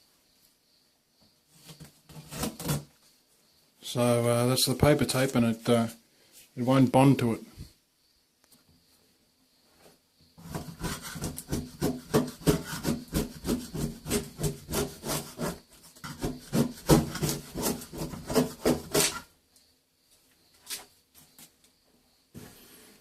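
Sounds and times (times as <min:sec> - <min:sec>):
scraping strokes on a wall: 0:10.4 - 0:19.3.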